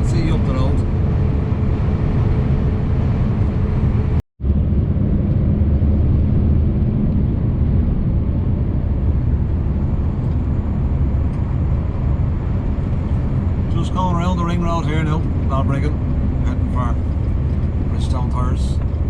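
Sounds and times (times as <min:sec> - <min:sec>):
road noise: 0:00.0 - 0:19.0
truck engine running: 0:00.0 - 0:19.0.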